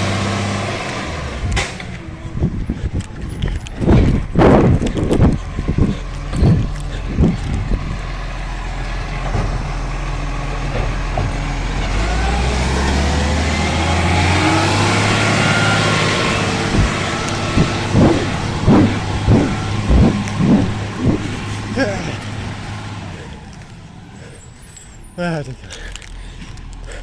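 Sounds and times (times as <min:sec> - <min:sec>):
diesel truck engine revving: 0:00.0 - 0:27.0
sharp knocks: 0:16.6 - 0:22.3.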